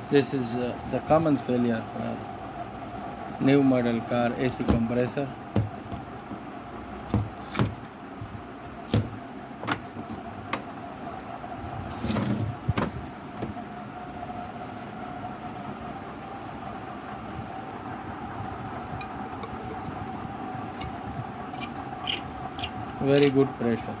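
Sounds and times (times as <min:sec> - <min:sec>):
air conditioning compressor whine: 0:00.0 - 0:24.0
sharp clicks and knocks: 0:07.0 - 0:10.7.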